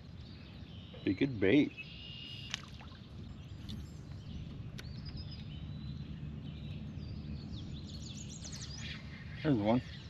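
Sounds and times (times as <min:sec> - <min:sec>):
small birds chirping: 0:00.0 - 0:10.0
low outdoor rumble: 0:02.9 - 0:10.0.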